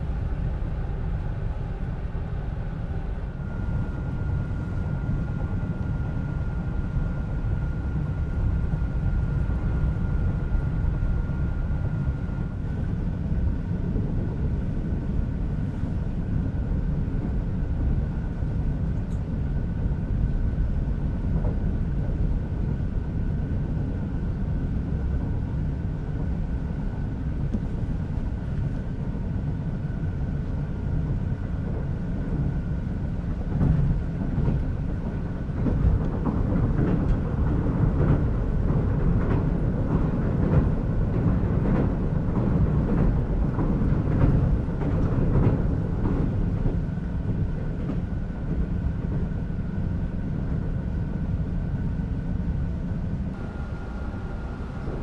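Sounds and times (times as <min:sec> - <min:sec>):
faint steady whine: 0:00.0 - 0:17.0, 0:48.2 - 0:55.0
train low rumble: 0:00.0 - 0:55.0.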